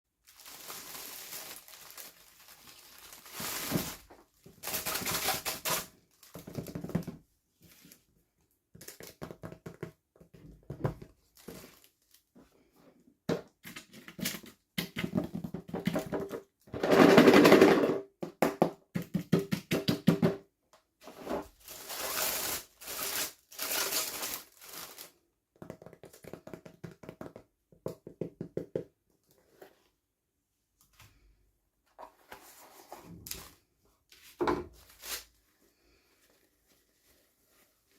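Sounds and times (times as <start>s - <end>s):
plastic packaging crinkling: 0.2s - 6.7s, 21.6s - 25.2s.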